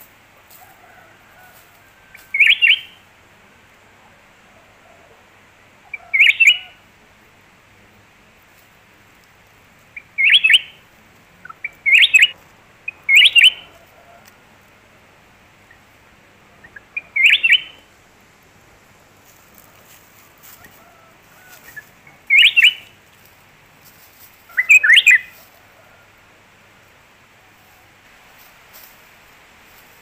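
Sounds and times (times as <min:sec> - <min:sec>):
bird calling: 0:02.2 - 0:03.0, 0:05.8 - 0:06.8, 0:09.9 - 0:14.3, 0:16.6 - 0:17.9, 0:19.6 - 0:23.0, 0:24.4 - 0:26.0.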